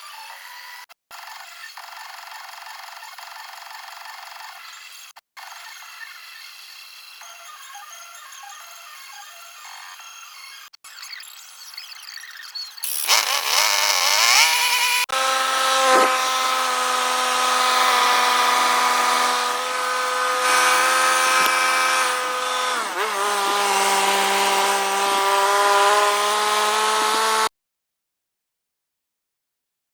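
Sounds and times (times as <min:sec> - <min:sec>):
welding machine engine running: 0:12.8 - 0:15.2, 0:16.1 - 0:25.3.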